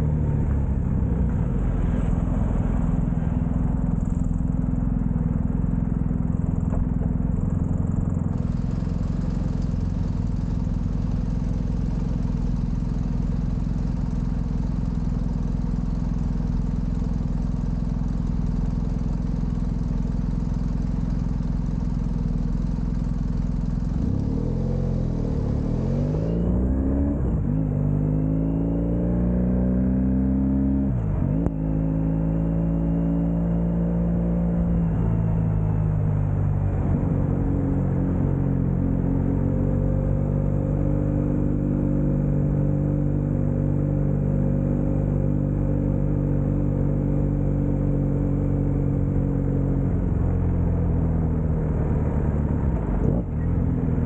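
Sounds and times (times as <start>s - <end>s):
motorcycle engine running: 0.0s - 26.4s.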